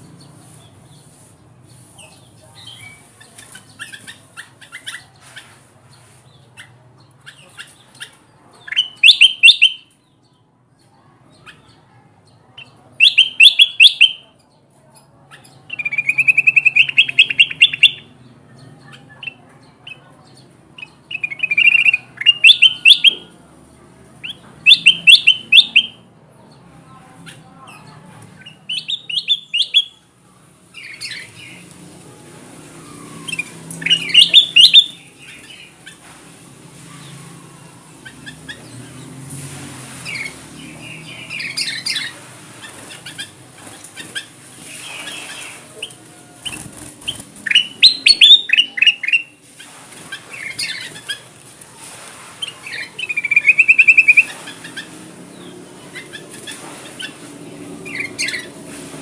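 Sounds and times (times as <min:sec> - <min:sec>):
bird chirping and trilling: 0:02.0 - 0:05.2, 0:06.5 - 0:10.2, 0:12.6 - 0:14.2, 0:15.3 - 0:18.3, 0:20.8 - 0:23.3, 0:24.2 - 0:26.0, 0:27.3 - 0:30.0, 0:30.7 - 0:31.6, 0:32.8 - 0:36.0, 0:40.0 - 0:51.3, 0:52.4 - 0:58.6.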